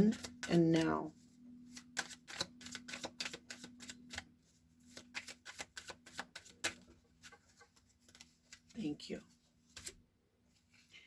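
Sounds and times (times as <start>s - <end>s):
cards being shuffled: 0.0s - 0.9s, 1.6s - 8.9s, 9.7s - 10.0s.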